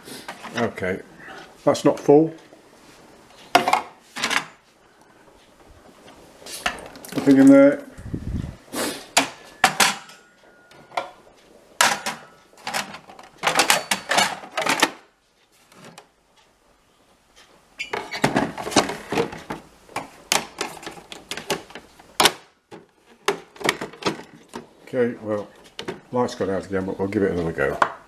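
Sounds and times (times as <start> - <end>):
plastic parts clattering and clicking: 3.6 - 4.6, 11.8 - 15.0, 17.9 - 24.8.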